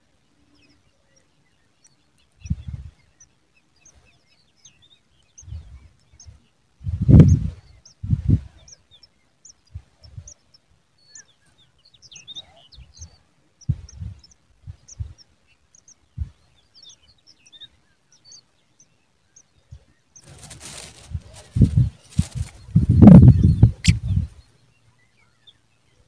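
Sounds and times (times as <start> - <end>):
high bird chirps: 15.8 - 25.6.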